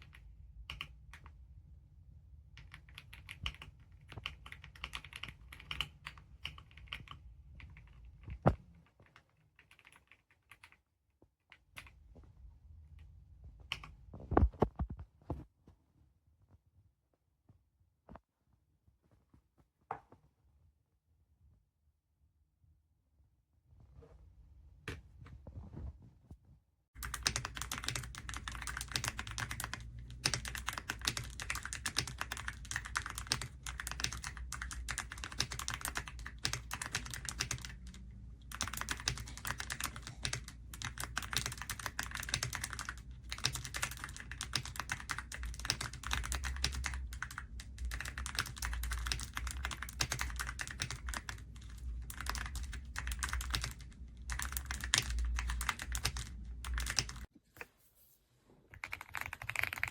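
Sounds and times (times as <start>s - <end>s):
mechanical keyboard typing: 0.0s - 1.3s, 2.6s - 10.8s, 27.0s - 57.3s, 58.8s - 59.9s.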